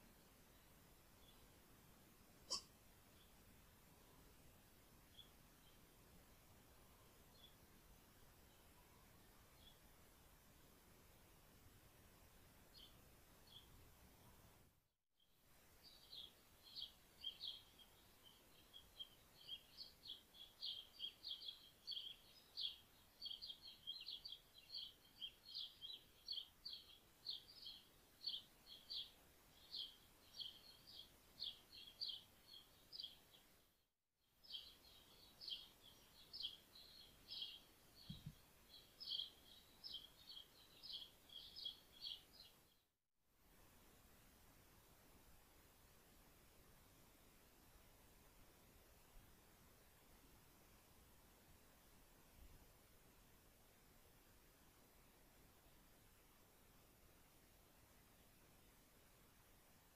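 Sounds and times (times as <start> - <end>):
small bird chirping rapidly: 15.8 - 33.4, 34.4 - 42.8.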